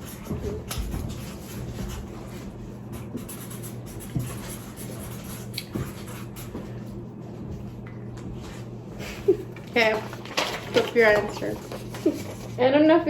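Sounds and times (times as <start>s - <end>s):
pen scratching on paper: 0.0s - 6.6s.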